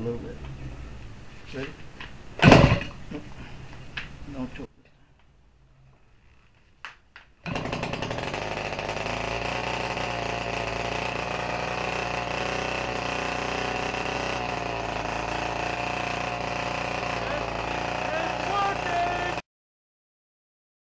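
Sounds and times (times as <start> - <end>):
model plane engine running: 8.3 - 19.4.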